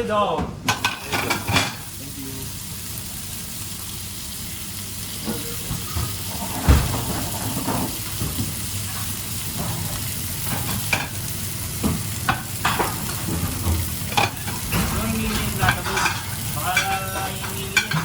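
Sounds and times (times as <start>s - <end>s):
pans and utensils clinking: 0.7s - 2.0s, 5.1s - 18.0s
food sizzling in a pan: 0.7s - 18.0s
thump: 6.7s - 7.1s.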